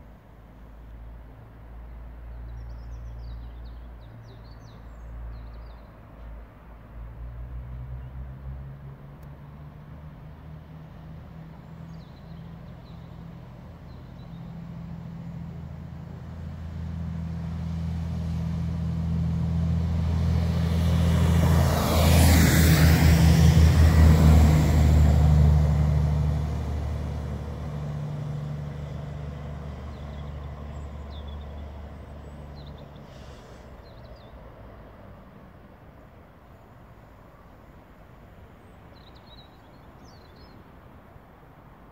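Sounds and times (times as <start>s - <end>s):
train passing by: 13.2s - 33.8s.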